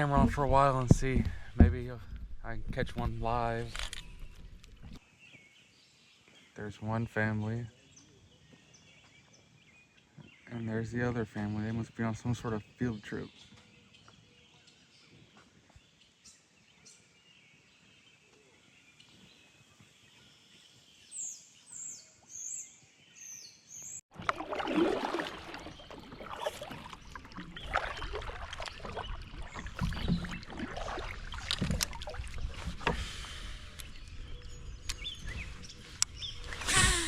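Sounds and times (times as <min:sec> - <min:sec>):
water sounds: 0:00.0 - 0:05.0, 0:24.1 - 0:37.0
wind buffeting microphone: 0:00.0 - 0:05.0.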